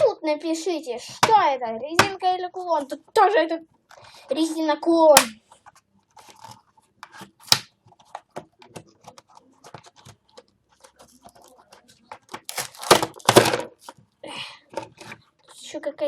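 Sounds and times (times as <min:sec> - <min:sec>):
plastic toys clicking and tapping: 0:08.4 - 0:13.7
plastic packaging rustling: 0:12.5 - 0:13.5.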